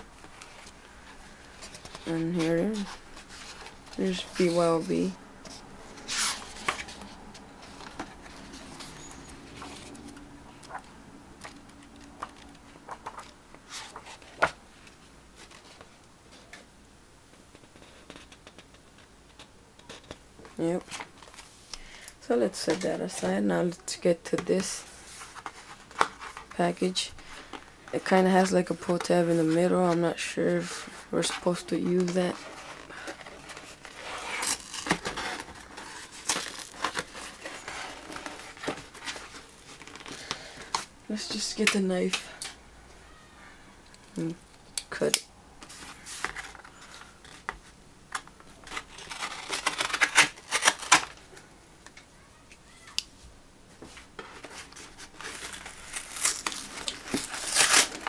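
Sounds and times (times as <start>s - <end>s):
paper rustling: 0.2s - 16.6s, 27.2s - 40.9s, 45.6s - 51.2s, 53.8s - 58.0s.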